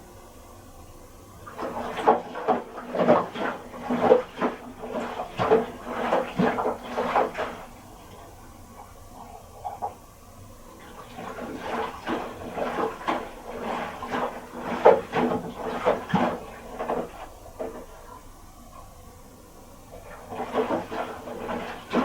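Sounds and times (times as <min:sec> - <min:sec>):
wet laundry tumbling in drum: 0:01.3 - 0:18.7, 0:19.8 - 0:22.0.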